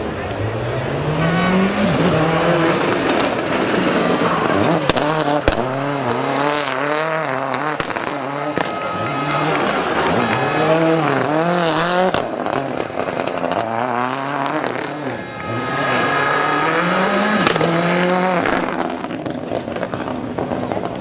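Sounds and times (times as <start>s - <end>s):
rally car engine revving: 0.0s - 21.0s
sharp cracks: 3.0s - 19.4s.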